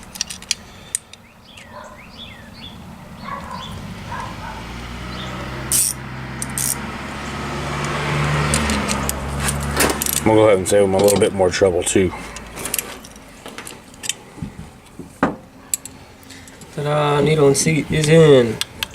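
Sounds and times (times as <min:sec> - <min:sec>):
low steady engine hum: 0:00.0 - 0:18.9
thin high whining calls: 0:00.6 - 0:05.6
sharp clinks: 0:05.6 - 0:06.9.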